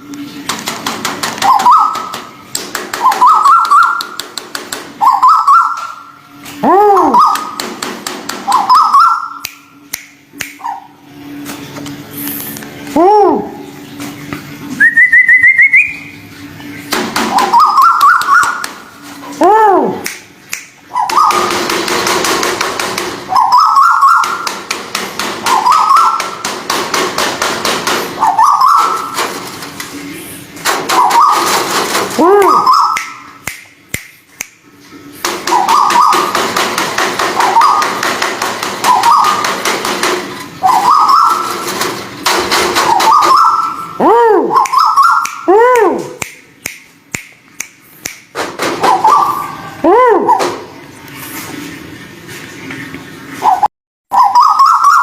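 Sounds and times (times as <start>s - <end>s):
bird calling with ticking notes: 1.4s - 4.4s, 5.0s - 6.2s, 7.0s - 7.6s, 8.4s - 11.0s, 14.8s - 16.2s, 17.3s - 18.9s, 20.0s - 21.7s, 23.3s - 24.6s, 25.5s - 26.4s, 28.2s - 29.2s, 30.9s - 31.6s, 32.4s - 34.6s, 35.5s - 36.4s, 37.4s - 38.1s, 38.8s - 39.5s, 40.6s - 41.7s, 42.9s - 47.7s, 48.8s - 49.6s, 53.4s - 55.0s
bird whistling rising notes: 5.0s - 6.0s, 14.8s - 16.1s, 40.6s - 41.5s, 54.1s - 55.0s.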